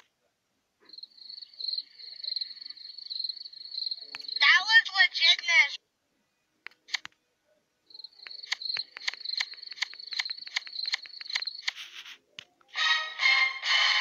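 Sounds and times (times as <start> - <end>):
shrill insect-like trill: 0.9 - 4.4
brief hiss: 11.6 - 12.2.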